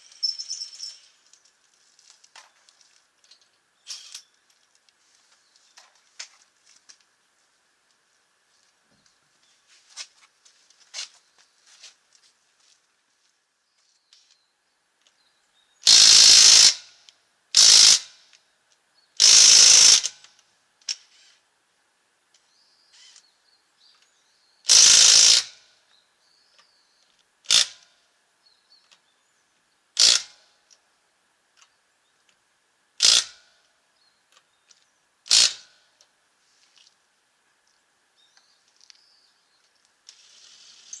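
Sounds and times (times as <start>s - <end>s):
impact wrench bursts: 15.9s - 16.8s, 17.6s - 18.0s, 19.2s - 20.1s, 24.7s - 25.5s, 30.0s - 30.2s, 33.0s - 33.3s, 35.3s - 35.6s.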